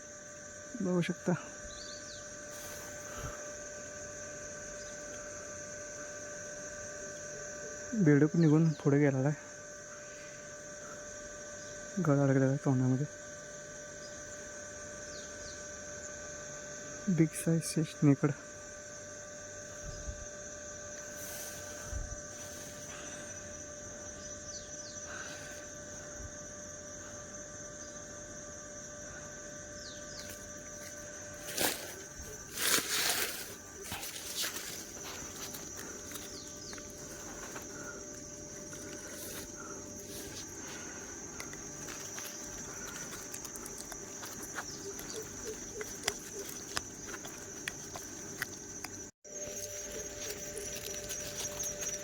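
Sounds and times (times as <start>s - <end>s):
insect chorus: 0.0s - 52.0s
thin high constant tone: 0.0s - 52.0s
steady hum: 18.5s - 52.0s.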